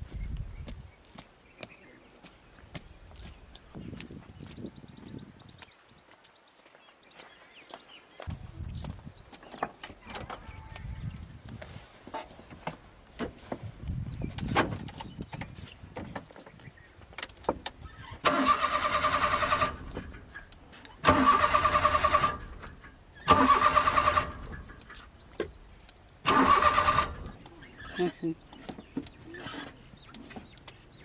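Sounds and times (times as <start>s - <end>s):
car starter motor cranking: 18.0s - 20.3s, 21.0s - 24.7s, 26.2s - 28.0s.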